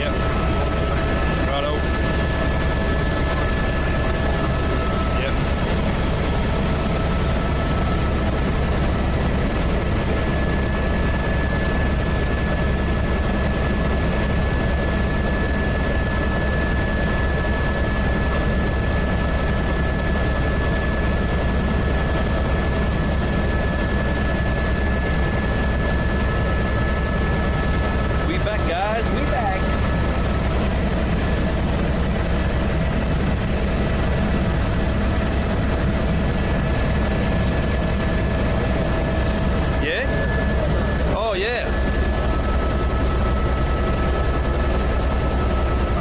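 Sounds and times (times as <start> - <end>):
helicopter rotor and engine drone: 0.0 - 46.0.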